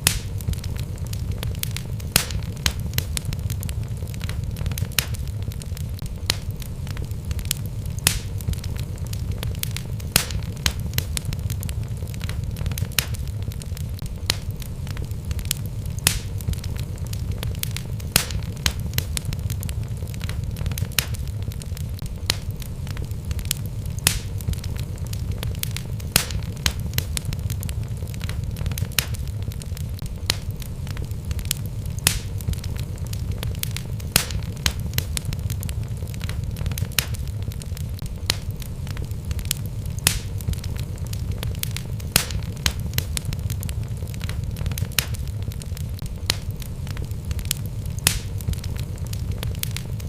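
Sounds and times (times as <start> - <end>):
logs crackling and popping: 0.0 - 50.0
low rumble of flames: 0.0 - 50.0.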